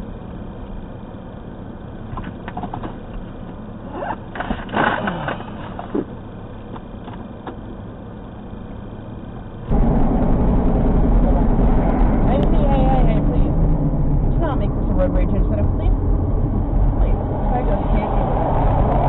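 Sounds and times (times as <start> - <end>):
car engine and road hum: 0.0 - 19.0
loud rumble: 9.6 - 19.0
noisy sound with falling pitch: 9.7 - 19.0.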